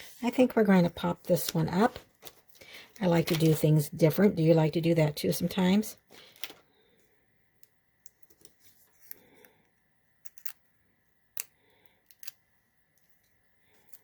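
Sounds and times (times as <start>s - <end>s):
cardstock rustling: 1.2s - 3.8s.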